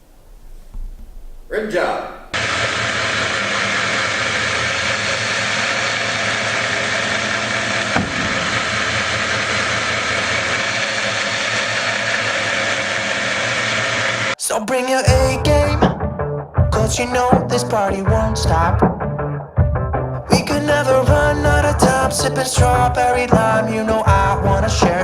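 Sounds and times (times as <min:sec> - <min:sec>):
belt grinder grinding metal: 0:02.4 - 0:14.4.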